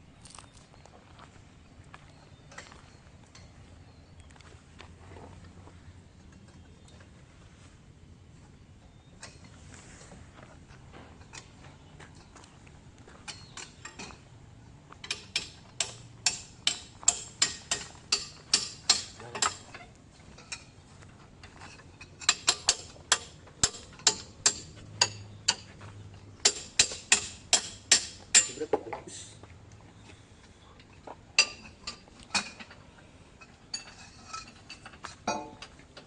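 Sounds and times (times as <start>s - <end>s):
hammer striking steel: 26.4s - 28.6s.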